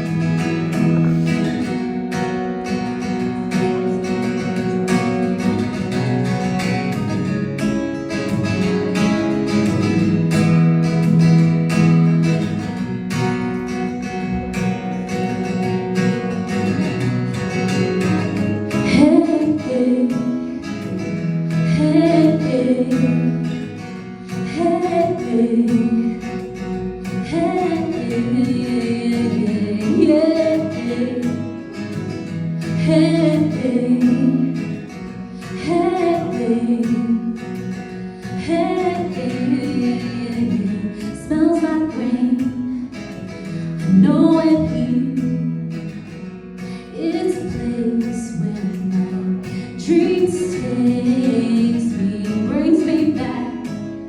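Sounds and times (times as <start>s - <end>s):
strummed acoustic guitar: 0.0s - 54.0s
person singing: 18.7s - 20.8s, 38.4s - 42.9s.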